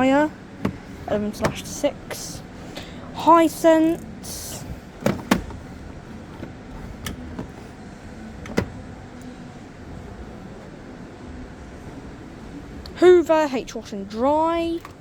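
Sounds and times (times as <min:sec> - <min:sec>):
shop background noise: 0:00.0 - 0:15.0
clicks and knocks on washing machine: 0:01.4 - 0:01.7.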